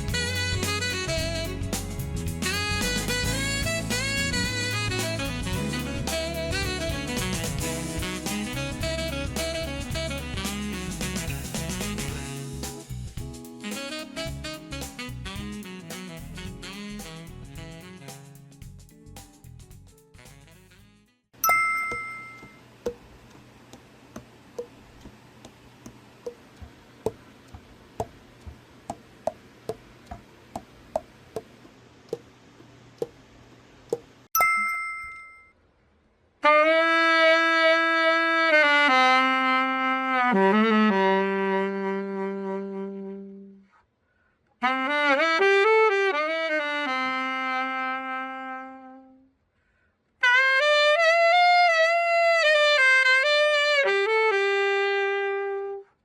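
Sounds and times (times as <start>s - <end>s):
alto saxophone playing: 0.0s - 12.6s, 13.5s - 18.5s, 36.4s - 43.8s, 44.6s - 49.4s, 50.2s - 56.0s
two-tone chime: 21.4s - 22.6s, 34.4s - 35.6s.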